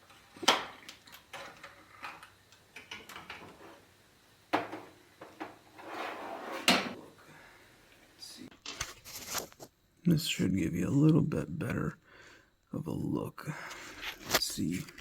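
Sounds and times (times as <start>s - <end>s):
metal scrape: 5.7s - 7.0s.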